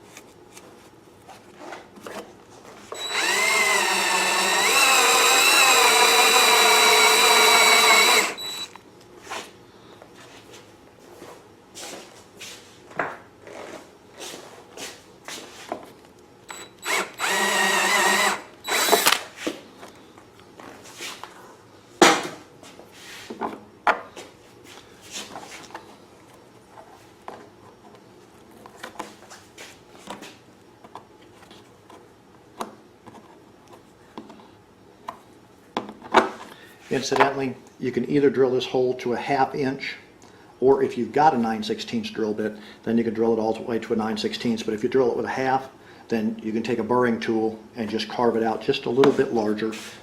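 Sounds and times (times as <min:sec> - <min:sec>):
electric drill boring: 0:02.9 - 0:08.8, 0:16.5 - 0:19.2.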